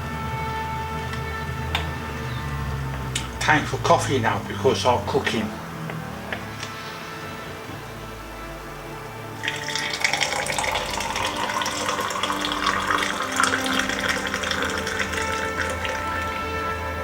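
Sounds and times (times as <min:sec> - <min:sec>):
background music: 0:00.0 - 0:17.0
water running from tap: 0:09.4 - 0:16.7.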